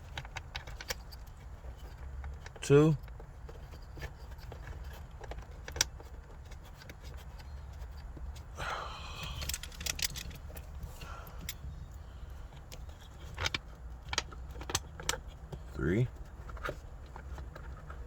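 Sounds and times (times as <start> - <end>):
low steady hum: 0.0 - 18.0
metallic clicks of screws and tool: 9.2 - 10.7.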